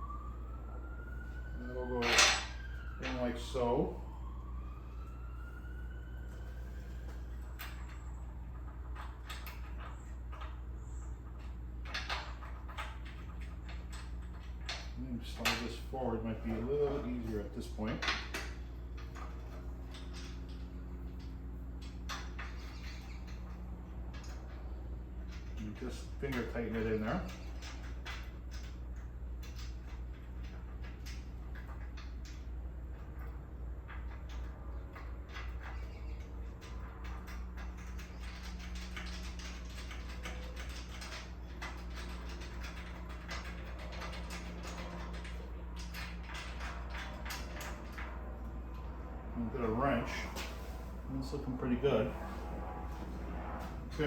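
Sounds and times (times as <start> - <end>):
steady low hum: 0.0 - 54.0
low hum: 27.3 - 54.0.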